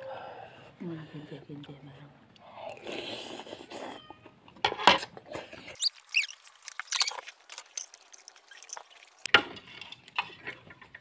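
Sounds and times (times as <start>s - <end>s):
short squeaky chirps: 5.8s - 7.3s
chewing crispy fried food: 5.8s - 9.3s.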